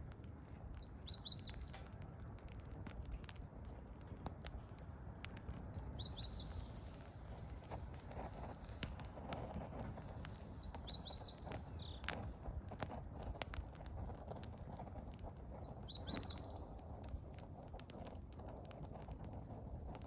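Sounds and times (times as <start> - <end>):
wood fire crackling and popping: 0.0 - 20.0
songbird twittering: 0.7 - 2.2, 5.6 - 7.1, 10.4 - 12.1, 15.4 - 17.1.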